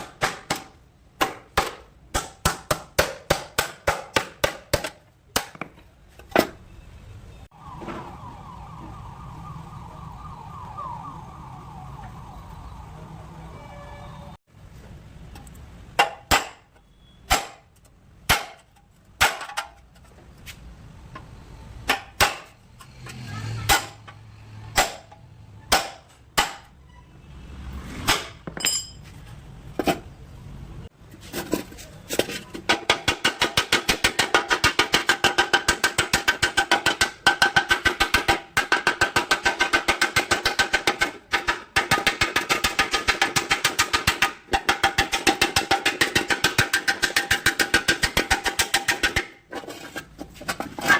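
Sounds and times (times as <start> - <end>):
hammer striking metal panel: 16.0 - 16.7, 18.3 - 19.8, 25.7 - 26.7, 32.7 - 49.4.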